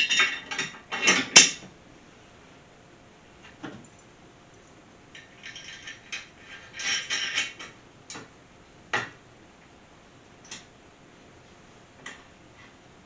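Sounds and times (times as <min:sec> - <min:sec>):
bolts and nuts clinking: 0:05.2 - 0:07.7.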